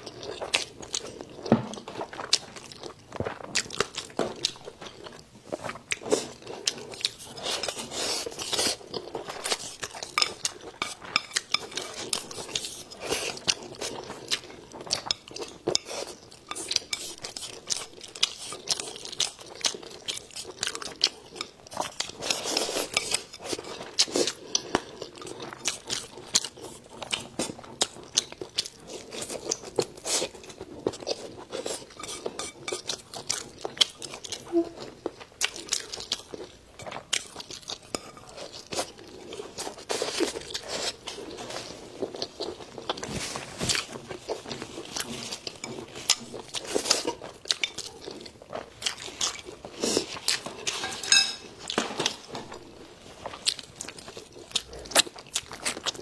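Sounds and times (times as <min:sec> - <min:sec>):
person chewing crunchy food: 0:00.0 - 0:56.0
chopsticks clinking dishes: 0:50.5 - 0:52.1.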